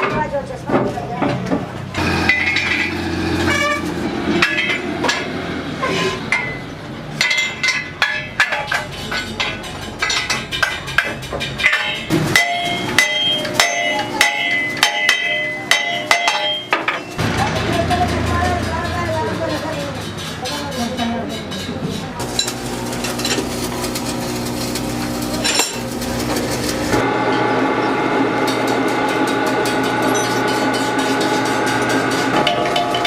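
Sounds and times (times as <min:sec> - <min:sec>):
hammer ringing on steel: 0:11.6 - 0:17.2.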